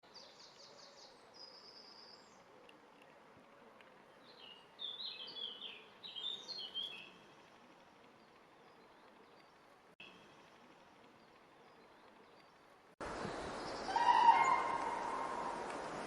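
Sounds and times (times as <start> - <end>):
small bird singing: 0.1 - 2.7, 4.1 - 12.7.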